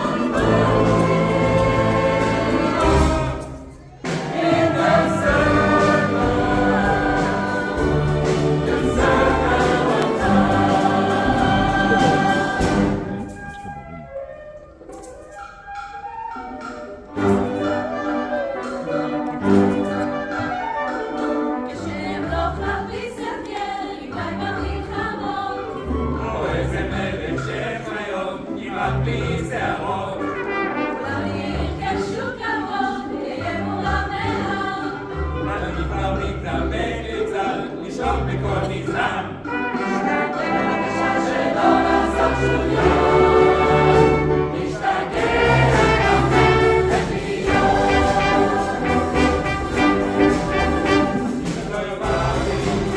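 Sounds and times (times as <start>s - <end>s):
choir singing sustained chords: 0.0s - 13.4s, 21.1s - 52.9s
brass: 0.0s - 22.5s, 29.2s - 32.0s, 37.4s - 52.9s
orchestra playing: 0.0s - 52.9s.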